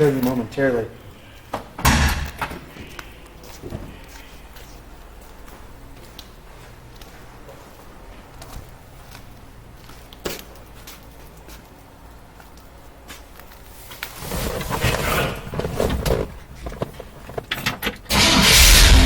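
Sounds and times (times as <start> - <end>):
truck engine starting: 17.8 - 19.0.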